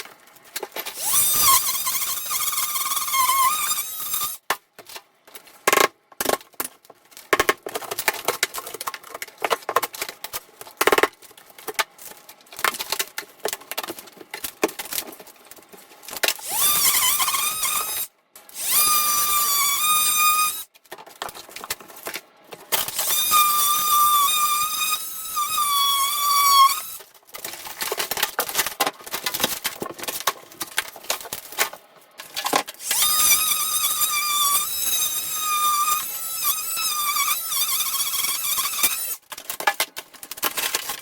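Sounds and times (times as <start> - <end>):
power tool whining: 0.9 - 4.4, 16.4 - 20.7, 22.9 - 27.0, 32.8 - 39.2.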